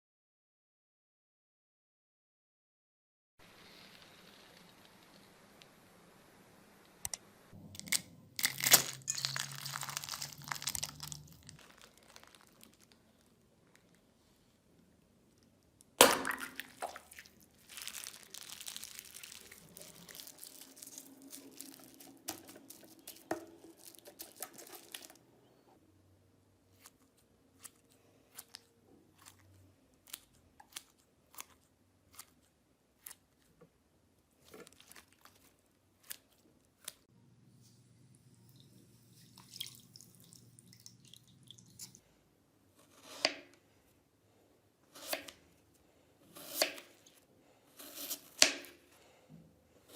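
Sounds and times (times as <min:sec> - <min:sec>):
slime crackling when squeezed: 0:07.8 - 0:13.9, 0:16.4 - 0:25.2.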